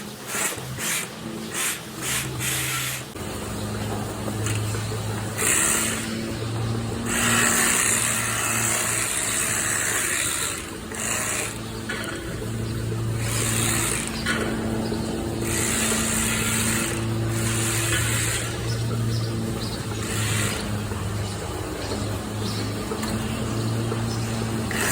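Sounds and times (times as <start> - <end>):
blades hissing through hair: 0.0 - 3.2
electric clippers humming: 0.0 - 24.9.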